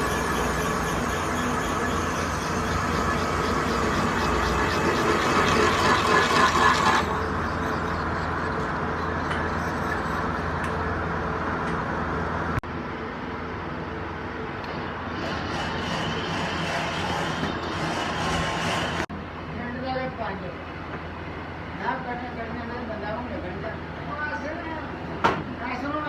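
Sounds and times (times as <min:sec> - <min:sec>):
lathe motor humming: 0:00.0 - 0:12.6.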